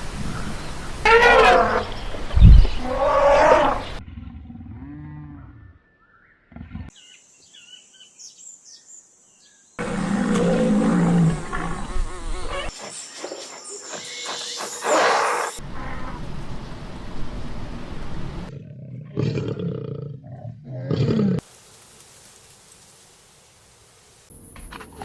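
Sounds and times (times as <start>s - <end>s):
animal roars: 2.6s - 5.8s, 9.8s - 12.7s, 18.5s - 21.4s
low growling roar: 2.7s - 5.8s, 9.8s - 12.7s, 18.5s - 21.4s
animal calls and chirps: 9.8s - 16.2s.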